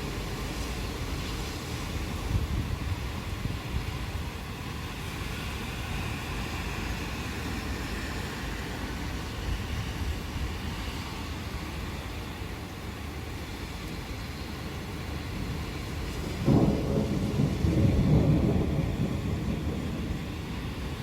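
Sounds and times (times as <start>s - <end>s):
steady rain: 0.0s - 21.0s
distant thunder rumbling: 15.1s - 21.0s.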